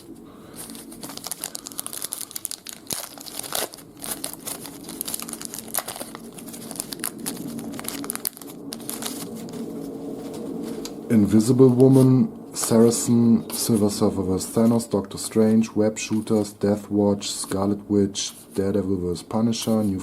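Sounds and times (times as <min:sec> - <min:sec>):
card pack wrapper crinkling and tearing: 0:00.6 - 0:09.7.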